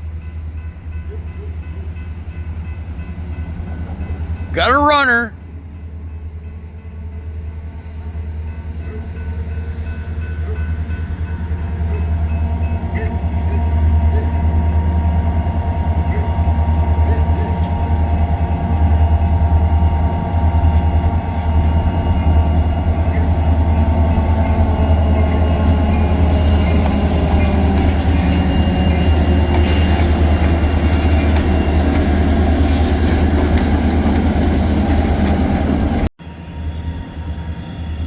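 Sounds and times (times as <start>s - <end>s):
diesel train engine drone: 9.1s - 38.0s
train wheels rolling on rail: 18.1s - 36.1s.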